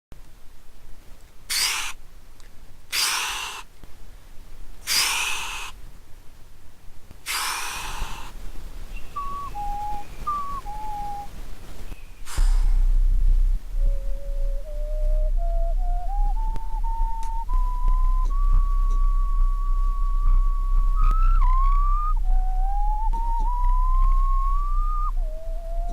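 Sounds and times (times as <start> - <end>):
mouth-made hissing bursts: 1.5 - 2.0, 2.9 - 3.7, 4.8 - 5.8, 7.2 - 13.0
mouth-made low rumble: 7.9 - 25.9
whistled rising tone: 9.0 - 11.3, 13.7 - 25.9.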